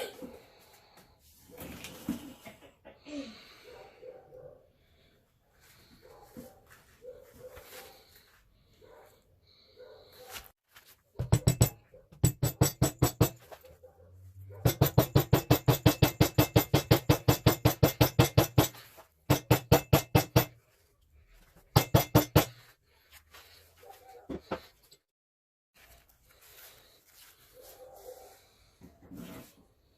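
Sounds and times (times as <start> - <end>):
rapid metallic tapping: 11.2 - 13.5, 14.6 - 20.6, 21.7 - 22.6.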